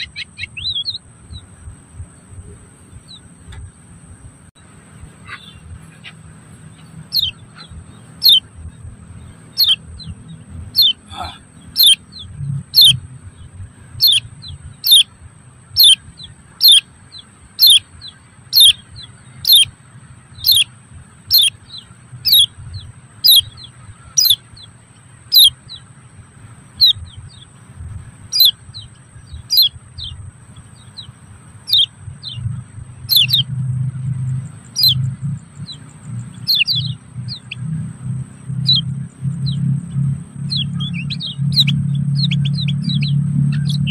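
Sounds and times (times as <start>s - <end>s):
bird chirps sweeping down: 0.0s - 1.5s, 5.2s - 13.0s, 14.0s - 15.1s, 15.7s - 16.8s, 17.6s - 19.7s, 20.4s - 20.7s, 21.3s - 24.7s, 25.3s - 25.8s, 28.3s - 33.6s, 34.3s - 37.8s, 38.6s - 43.9s.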